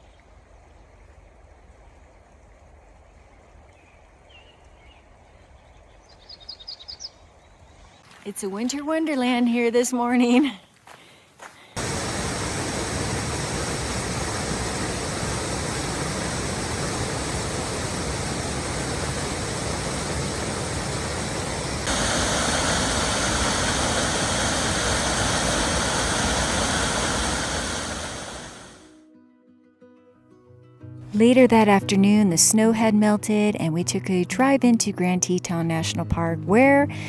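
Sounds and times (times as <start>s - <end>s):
river water rushing: 11.8s - 28.9s.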